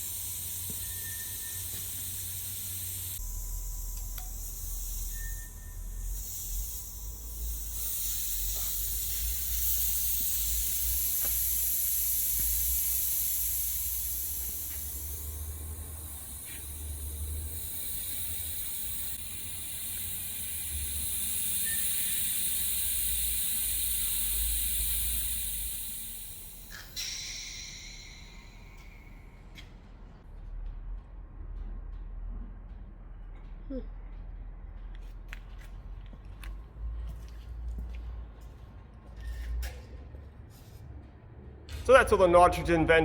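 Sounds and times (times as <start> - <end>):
gas hissing out: 0.0 - 29.3.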